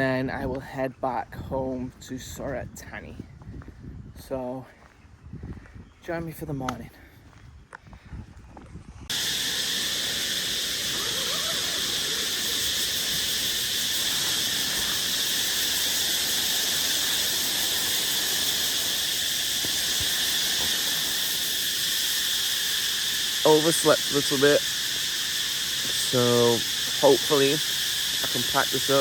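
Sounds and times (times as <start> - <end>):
insect chorus: 9.1 - 29.0.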